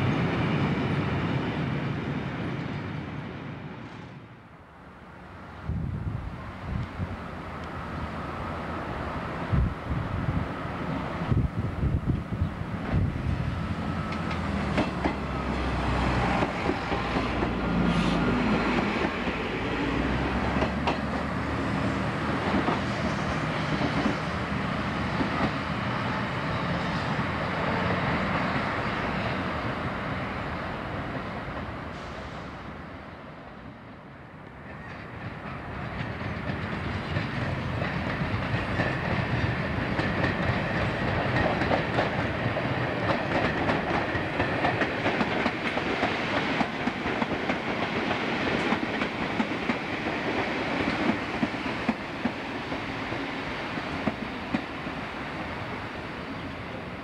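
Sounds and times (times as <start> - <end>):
train diesel engines: 0.0 - 57.0
electric train wheel clatter: 34.8 - 54.8.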